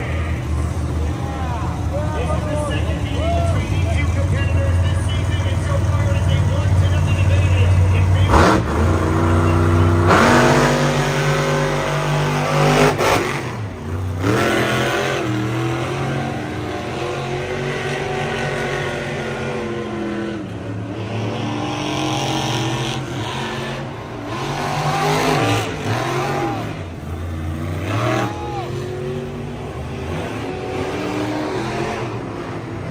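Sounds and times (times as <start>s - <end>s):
engine revving: 3.8s - 32.9s.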